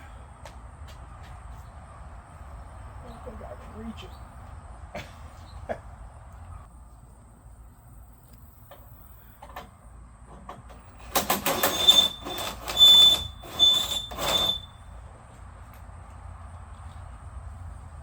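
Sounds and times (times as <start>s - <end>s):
mechanical scraping squeals: 10.9s - 15.0s.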